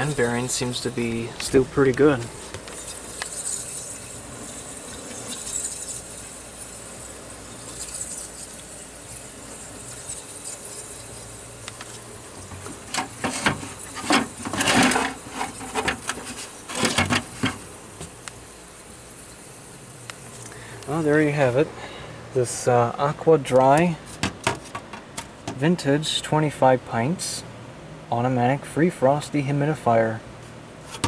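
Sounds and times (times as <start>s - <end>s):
dehumidifier fan whirring: 0.0s - 31.0s
handling clicks and knocks: 11.7s - 18.4s, 23.5s - 25.6s.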